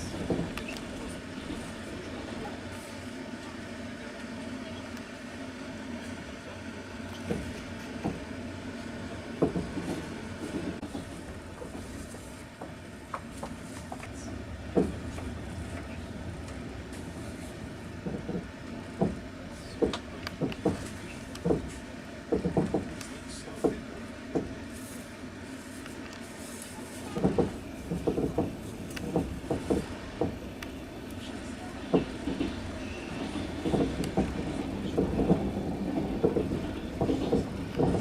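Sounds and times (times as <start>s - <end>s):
train rolling rumble: 0.0s - 38.0s
wheels clacking over rail joints: 9.4s - 24.6s, 27.1s - 38.0s.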